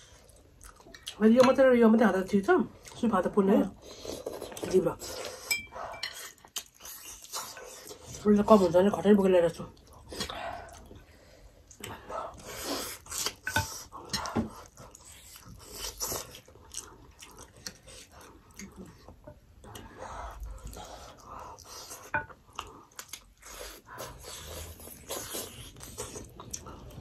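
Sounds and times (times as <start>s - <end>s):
wet chewing and lip smacks: 0.2s - 1.5s, 6.1s - 8.0s, 11.6s - 27.0s.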